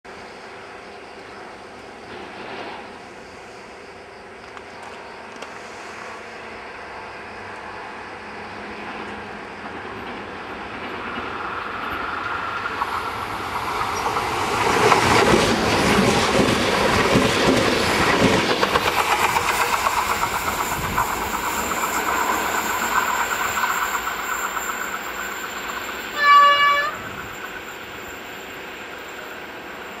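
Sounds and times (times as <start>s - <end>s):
electric train passing: 0.1s - 30.0s
train horn blast: 26.2s - 27.2s.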